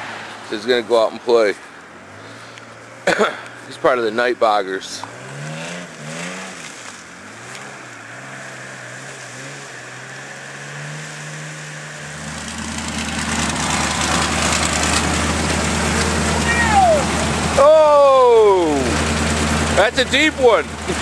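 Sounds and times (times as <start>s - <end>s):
truck engine revving: 4.9s - 21.0s
rush of mud noise: 5.6s - 21.0s.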